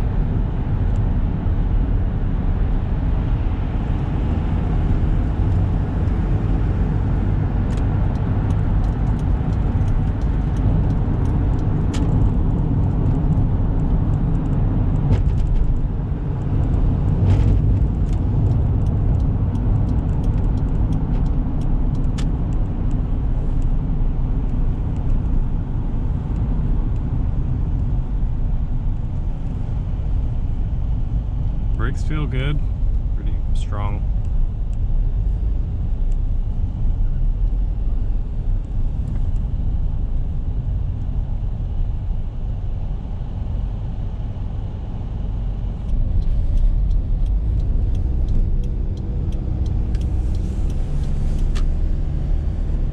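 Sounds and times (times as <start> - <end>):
van engine and road rumble: 0.0 - 52.9.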